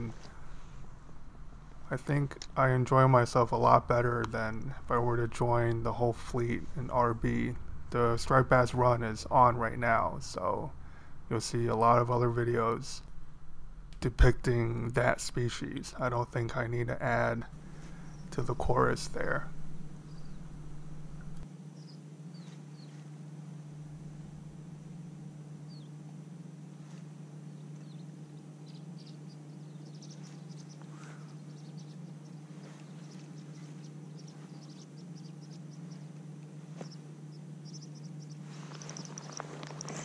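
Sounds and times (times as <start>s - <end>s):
steady low hum: 0.0s - 40.0s
faint bird chirps: 17.2s - 23.2s, 25.6s - 26.1s, 26.8s - 40.0s.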